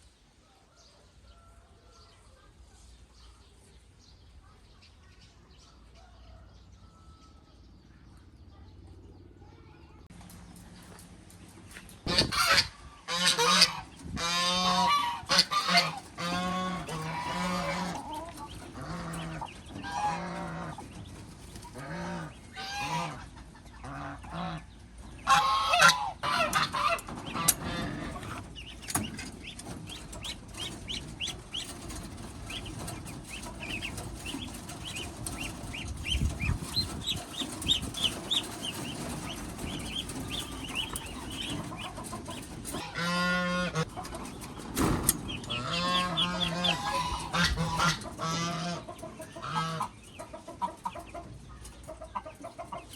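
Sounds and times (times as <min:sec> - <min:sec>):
chicks peeping: 0:00.0 - 0:52.9
poultry calling loudly: 0:12.1 - 0:20.9, 0:21.6 - 0:44.6, 0:45.2 - 0:51.3.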